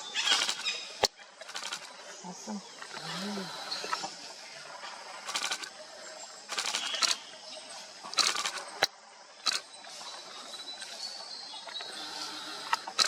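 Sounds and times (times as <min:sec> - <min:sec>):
forest ambience: 0:00.0 - 0:13.0
camera shutters firing: 0:06.5 - 0:07.2, 0:08.2 - 0:09.6.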